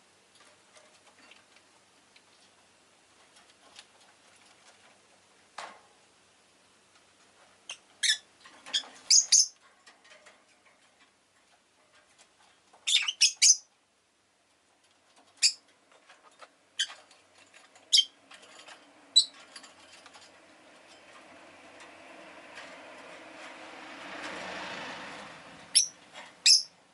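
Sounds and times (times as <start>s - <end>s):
lovebird chirping: 7.7s - 9.6s, 12.8s - 13.7s, 15.4s - 15.6s, 17.9s - 18.2s, 19.2s - 19.4s, 25.7s - 26.8s.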